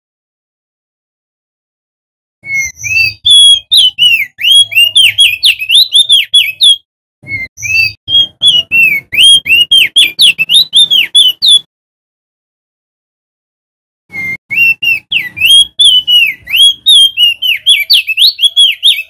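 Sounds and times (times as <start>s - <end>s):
bird singing whistled notes: 2.4s - 11.7s, 14.1s - 19.0s.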